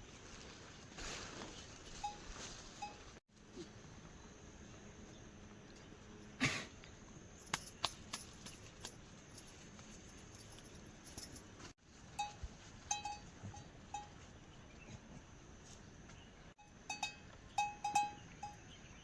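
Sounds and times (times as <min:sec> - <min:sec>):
livestock bell clinking: 0:02.0 - 0:03.1, 0:12.2 - 0:14.3, 0:16.6 - 0:19.0.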